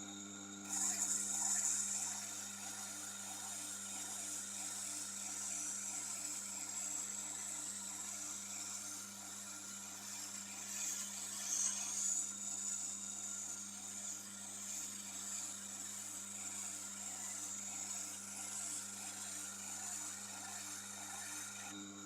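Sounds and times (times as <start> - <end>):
sharpening machine motor hum: 0.0 - 22.0
knife blade scraping on grinding wheel: 0.6 - 21.8.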